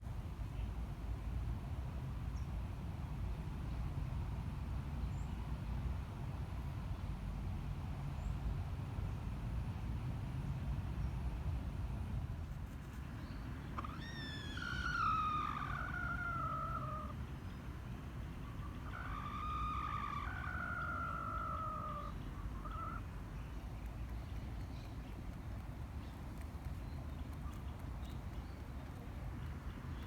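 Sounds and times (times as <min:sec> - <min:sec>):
junglefowl long calls: 0:13.7 - 0:17.2, 0:18.6 - 0:23.2.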